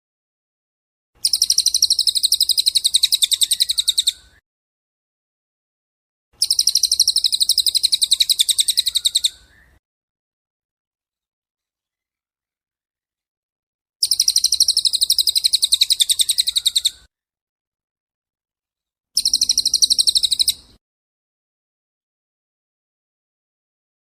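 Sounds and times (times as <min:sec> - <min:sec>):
songbird high-pitched trill: 0:01.2 - 0:04.4, 0:06.4 - 0:09.8, 0:14.0 - 0:17.1, 0:19.2 - 0:20.8.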